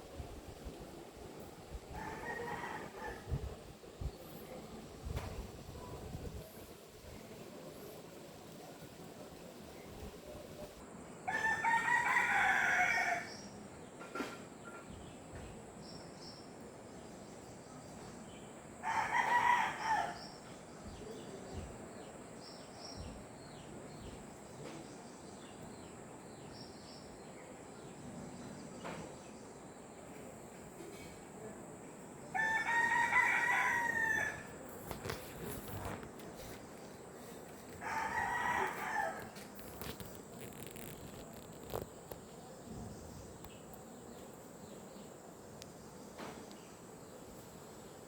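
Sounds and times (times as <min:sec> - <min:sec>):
rooster crowing: 0:01.9 - 0:03.4, 0:11.3 - 0:13.3, 0:18.8 - 0:20.2, 0:32.3 - 0:34.6, 0:37.7 - 0:39.4.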